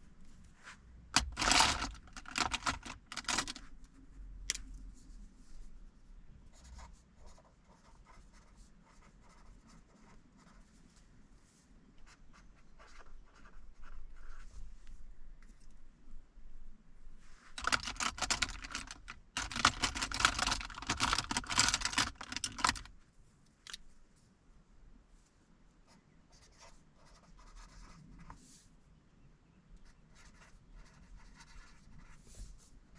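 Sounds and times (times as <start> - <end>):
pen scratching on paper: 6.5 - 10.6, 12.1 - 14.5, 26.3 - 28.4, 29.9 - 32.4.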